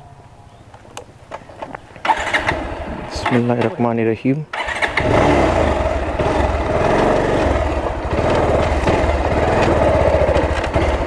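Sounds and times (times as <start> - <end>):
motorcycle engine at low revs: 2.0 - 3.9, 4.5 - 11.0.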